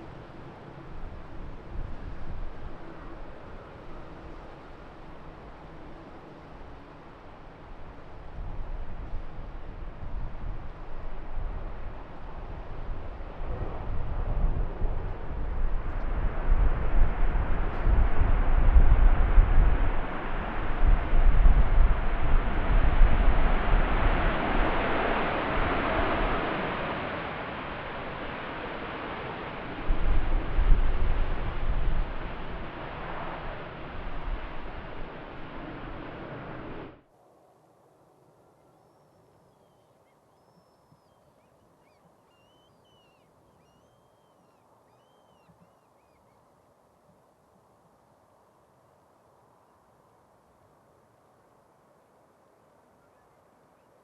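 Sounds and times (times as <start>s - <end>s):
wind buffeting microphone: 0.0s - 6.0s, 7.8s - 27.0s, 29.1s - 37.0s
jet engines rumbling: 0.0s - 45.8s.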